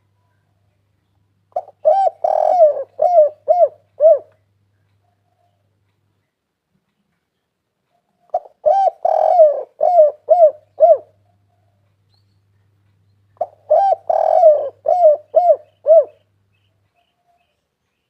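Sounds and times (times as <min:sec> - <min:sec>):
dove cooing: 0:01.5 - 0:04.4, 0:08.2 - 0:11.8, 0:13.4 - 0:16.3.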